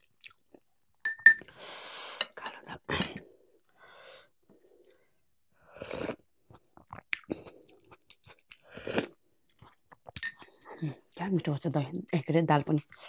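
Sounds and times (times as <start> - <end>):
person chewing with wet smacking: 0.0 - 0.7, 6.1 - 13.0.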